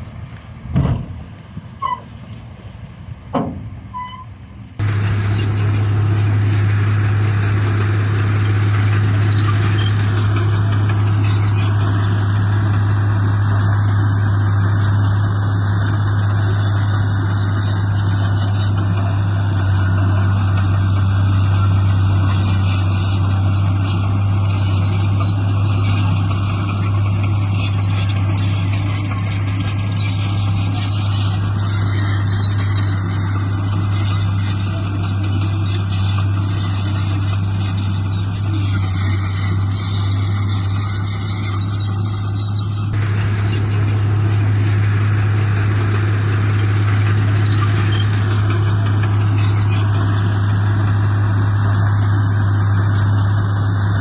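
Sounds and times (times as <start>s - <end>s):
heavy diesel engine humming: 0.0s - 54.0s
quiet machine noise: 0.0s - 54.0s
sharp knocks: 0.7s - 1.4s, 3.3s - 3.7s.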